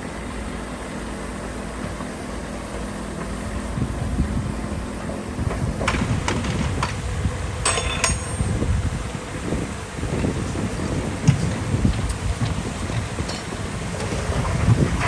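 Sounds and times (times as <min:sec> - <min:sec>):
heavy diesel machinery running: 0:00.0 - 0:15.0
sharp metallic clanks: 0:07.6 - 0:08.8.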